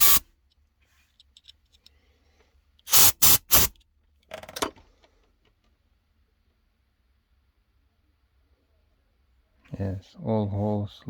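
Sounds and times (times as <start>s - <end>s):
compressed air blasts: 0.0s - 0.2s, 2.9s - 3.7s.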